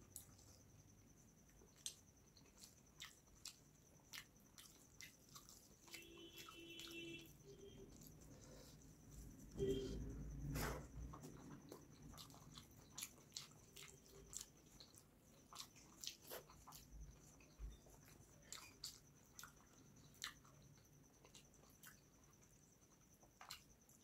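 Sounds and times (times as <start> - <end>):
wet chewing mouth clicks: 1.7 - 7.0, 11.2 - 22.1.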